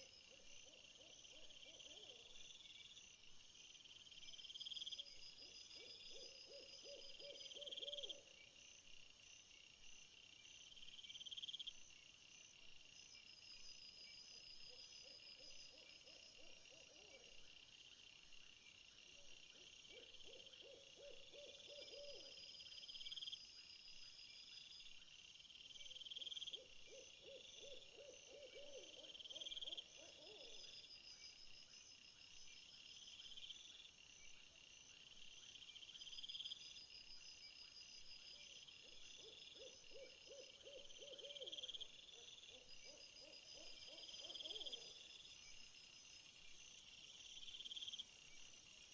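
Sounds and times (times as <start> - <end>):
insects trilling: 35.6 - 48.9.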